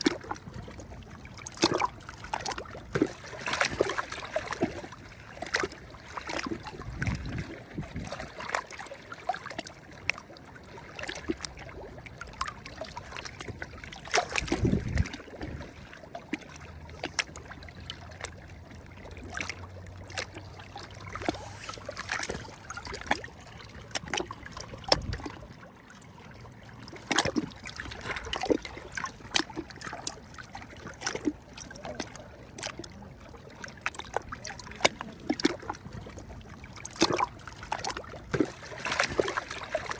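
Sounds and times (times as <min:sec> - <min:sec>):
waves lapping on shore: 0:01.5 - 0:11.7, 0:19.0 - 0:25.6, 0:36.7 - 0:39.9.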